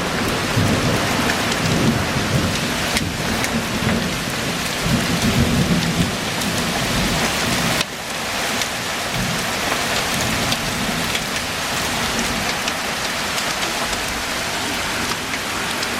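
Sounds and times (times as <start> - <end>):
low rumble of thunder: 0.0 - 7.8
heavy rain pouring: 0.0 - 15.9.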